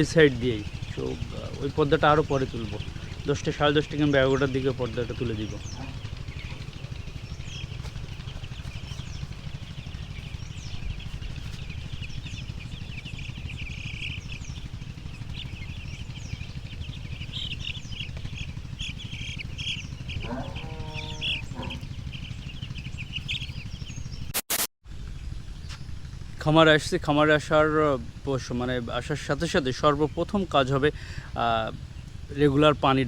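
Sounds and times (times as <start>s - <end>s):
steady low rumble: 0.0s - 24.2s
chicks peeping: 0.0s - 24.3s, 27.0s - 33.0s.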